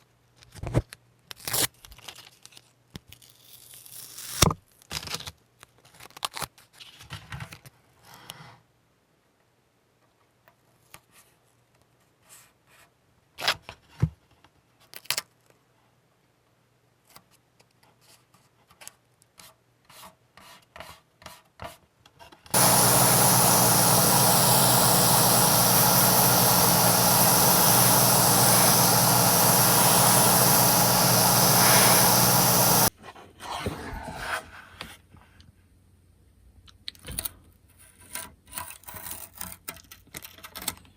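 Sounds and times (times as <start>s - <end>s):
small crinkles and clicks: 0.4s - 4.1s, 4.7s - 7.8s, 14.8s - 15.6s, 38.0s - 40.9s
loud steady hiss: 22.6s - 32.9s.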